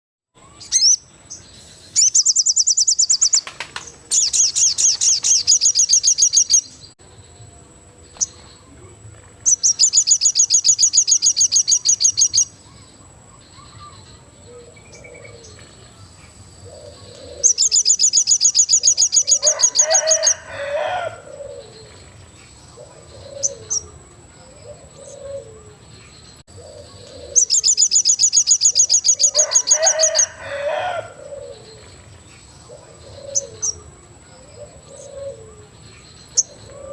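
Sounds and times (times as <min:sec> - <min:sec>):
songbird high-pitched trill: 0:00.4 - 0:03.5, 0:04.1 - 0:08.7, 0:09.4 - 0:20.9, 0:21.6 - 0:30.6
faint low bird calls: 0:08.0 - 0:36.9.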